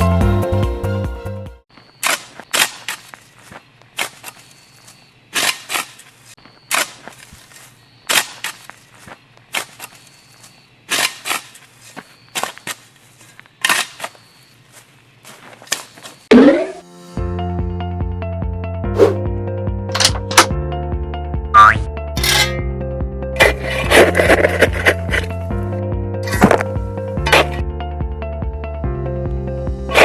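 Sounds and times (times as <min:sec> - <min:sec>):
short rising sweep: 0:19.0 - 0:19.2.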